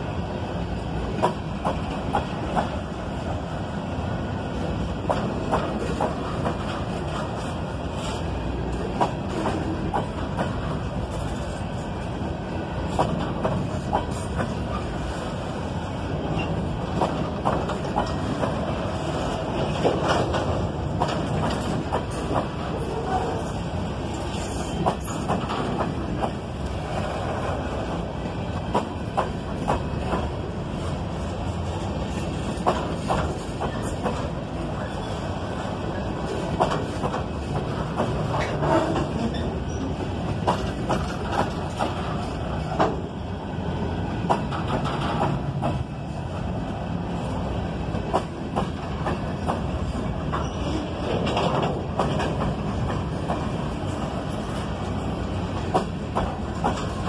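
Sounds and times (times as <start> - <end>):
train wheels rumbling on rail: 0.0 - 57.0
wheels clunking over rail joints: 12.7 - 46.3, 47.4 - 57.0.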